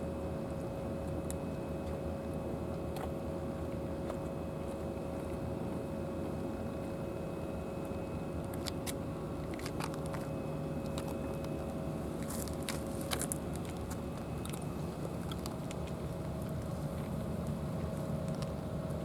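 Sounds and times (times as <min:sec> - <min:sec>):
steady low hum: 0:00.0 - 0:19.0
cats crunching dry food: 0:07.8 - 0:19.0.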